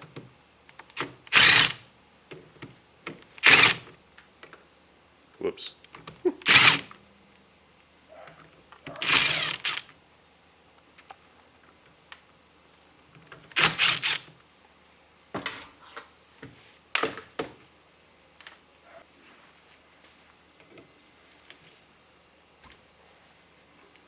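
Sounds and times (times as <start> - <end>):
ratchet clicking: 9.0 - 9.9, 13.6 - 14.2.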